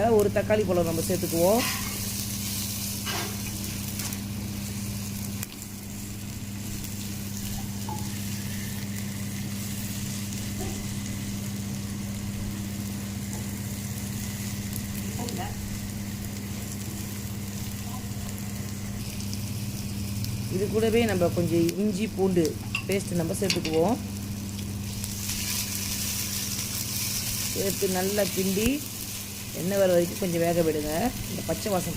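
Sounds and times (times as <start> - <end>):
food sizzling in oil: 0.0 - 31.9.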